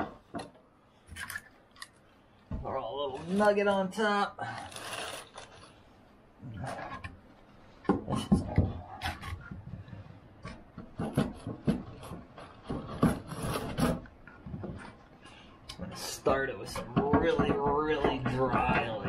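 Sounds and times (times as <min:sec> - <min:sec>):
firewood knocking and scraping: 0:00.0 - 0:01.9, 0:06.6 - 0:19.0.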